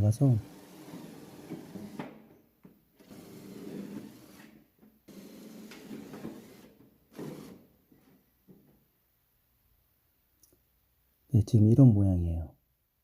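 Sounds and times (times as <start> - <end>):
drill driving screws into metal: 0.0 - 2.2, 3.0 - 7.7.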